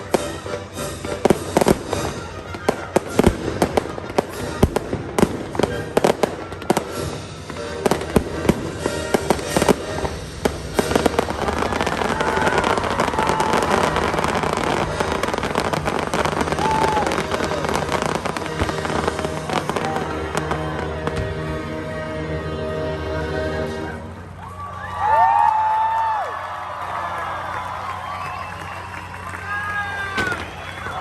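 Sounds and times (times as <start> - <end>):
fireworks bangs and crackles: 0.0 - 21.9, 27.6 - 31.0
music playing: 0.0 - 24.4.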